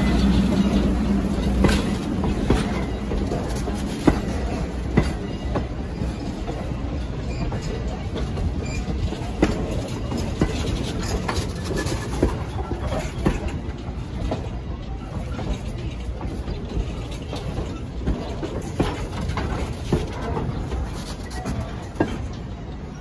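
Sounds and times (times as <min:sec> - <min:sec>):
train coaches rolling past: 0:00.0 - 0:23.0
wheels clicking on rails: 0:00.0 - 0:23.0.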